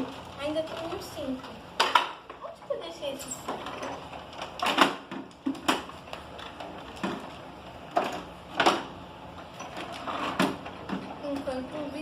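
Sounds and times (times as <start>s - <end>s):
plastic toy parts knocking: 1.8s - 2.3s.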